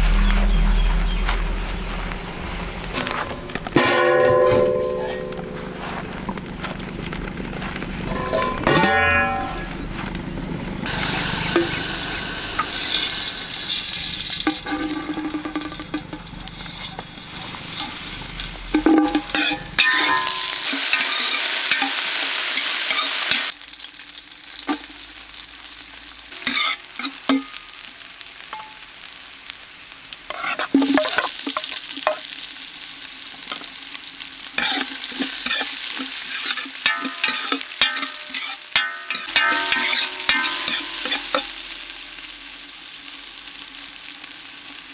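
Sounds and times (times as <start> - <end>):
loud steady sizzle: 5.4 - 44.9
food sizzling in a pan: 10.8 - 44.9
utensil stirring and scraping: 10.9 - 22.0, 26.4 - 27.1, 34.6 - 41.5.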